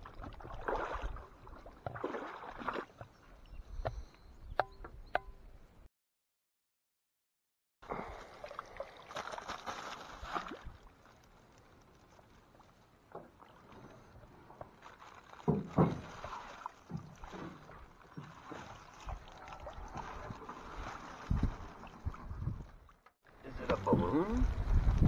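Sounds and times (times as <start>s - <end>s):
paddle strokes splashing water: 0.0s - 3.2s, 7.9s - 23.0s
canoe thumps: 15.4s - 18.4s.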